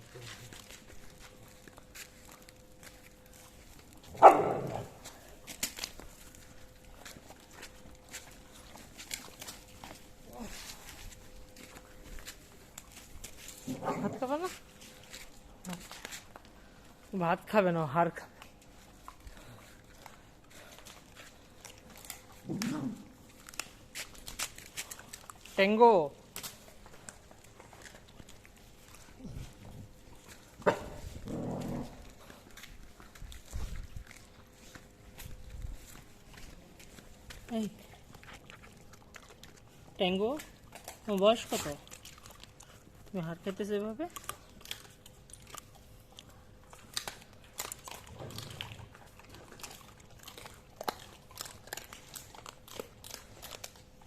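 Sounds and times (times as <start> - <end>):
dog gnawing bone: 0.0 - 17.1, 18.2 - 54.0
bone cracking: 5.4 - 6.4, 44.2 - 53.9
dog growling: 30.7 - 32.3.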